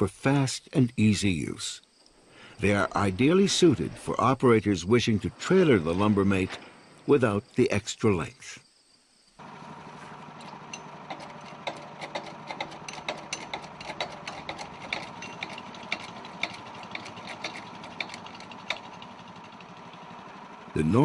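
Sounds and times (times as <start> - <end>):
machine hum: 9.4 - 21.0
light clicks and clanks: 10.4 - 19.7.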